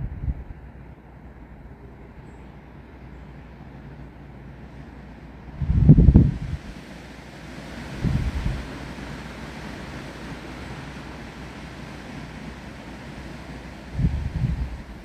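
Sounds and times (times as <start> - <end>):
wind gust on microphone: 0.0 - 0.8, 4.8 - 15.0
wind and rain through trees: 0.0 - 15.0.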